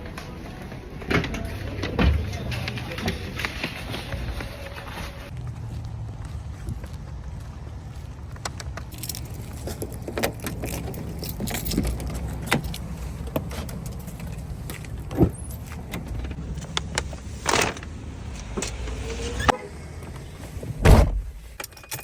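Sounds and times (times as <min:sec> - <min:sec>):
steady low rumble: 0:00.0 - 0:21.6
objects clicking and clinking: 0:08.5 - 0:17.9.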